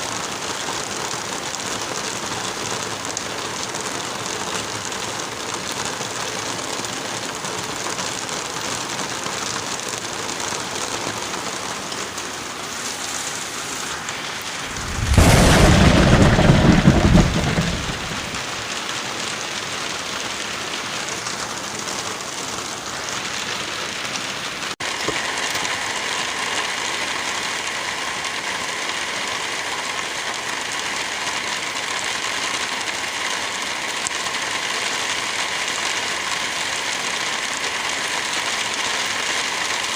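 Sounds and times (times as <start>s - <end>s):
steady rain: 0.0s - 39.9s
thunder clap rumbling: 14.4s - 18.8s.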